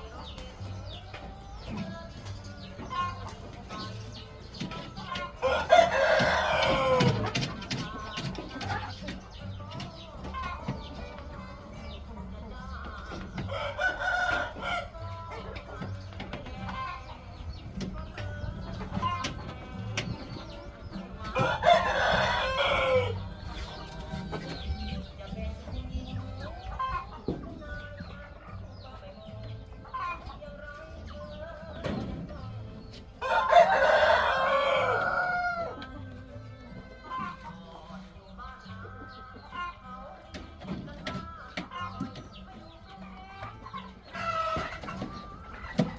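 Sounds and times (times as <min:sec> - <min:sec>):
chickens clucking: 0:00.0 - 0:45.9
rooster crowing: 0:05.4 - 0:07.1, 0:21.4 - 0:23.1, 0:33.2 - 0:35.8.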